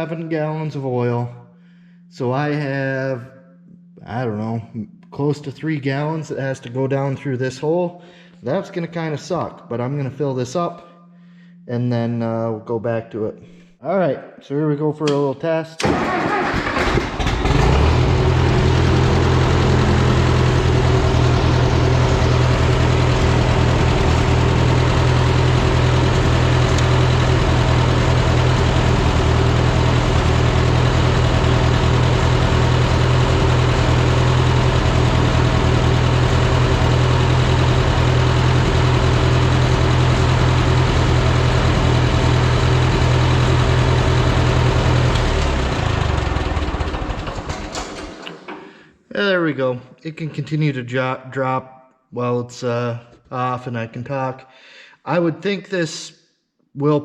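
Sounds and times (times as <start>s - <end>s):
tractor engine running: 15.8s - 48.7s.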